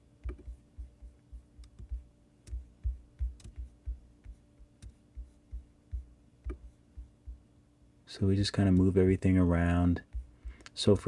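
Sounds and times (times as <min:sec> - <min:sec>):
soft low thumps: 0:00.0 - 0:07.6, 0:10.0 - 0:11.0
faint steady hum: 0:00.0 - 0:11.0
mouse and keyboard clicks: 0:03.3 - 0:03.7.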